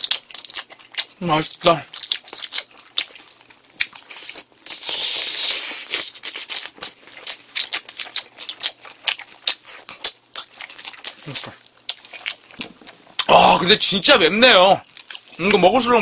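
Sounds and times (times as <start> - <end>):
wet mouth clicks and smacks: 0.0 - 3.2.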